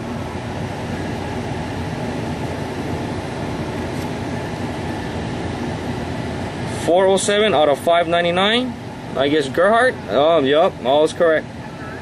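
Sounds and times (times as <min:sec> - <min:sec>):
steady mechanical noise: 0:00.0 - 0:12.0.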